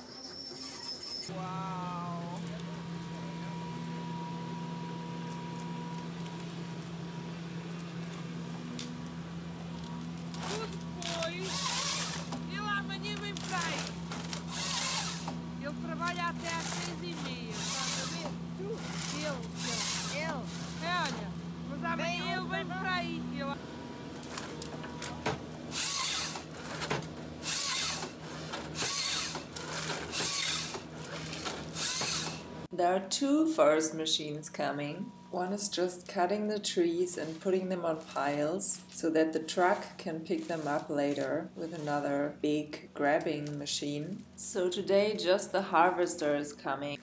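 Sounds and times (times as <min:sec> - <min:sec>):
diesel engine humming: 0:01.3 - 0:32.8.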